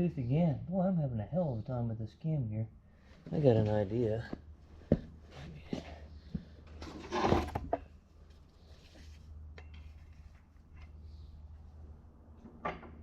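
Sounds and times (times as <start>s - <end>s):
faint clicks and taps of parts: 8.2s - 11.1s.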